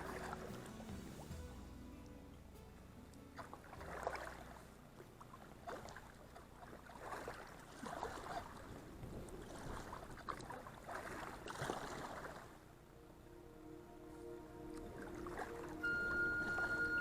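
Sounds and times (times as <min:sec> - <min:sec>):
kayak paddle splashing in water: 0:00.0 - 0:01.6, 0:03.4 - 0:12.7.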